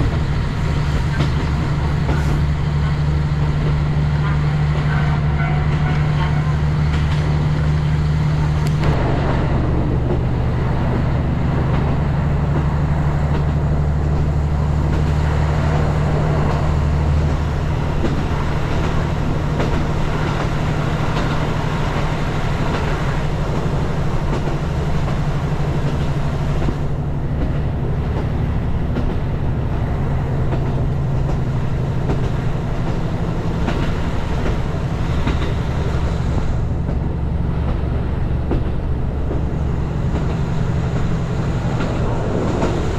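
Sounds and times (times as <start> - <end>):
train engine drone: 0.0 - 42.9
train wheels on track: 0.0 - 42.9.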